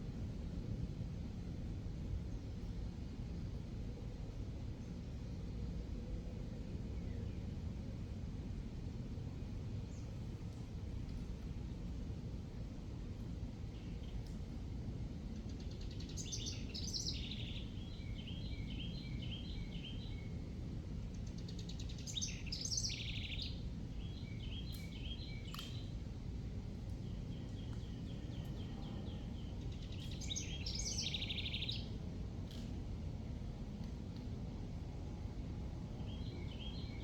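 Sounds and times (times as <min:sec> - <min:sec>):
low outdoor rumble: 0:00.0 - 0:37.0
songbird singing trills: 0:15.6 - 0:20.3, 0:21.4 - 0:25.9, 0:27.0 - 0:31.9, 0:36.0 - 0:37.0.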